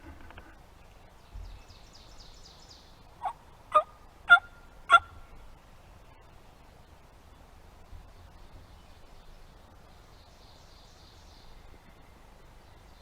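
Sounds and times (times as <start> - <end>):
turkey yelps: 3.2 - 5.2.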